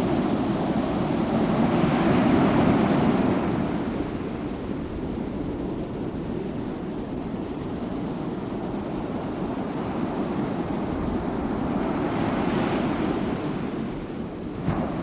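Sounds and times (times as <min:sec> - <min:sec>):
sea waves surging: 0:00.0 - 0:15.0.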